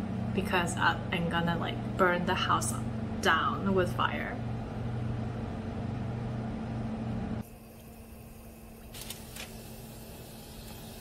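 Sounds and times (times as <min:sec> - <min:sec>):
low hum: 0:00.0 - 0:08.9
kitchen hiss: 0:08.9 - 0:11.0.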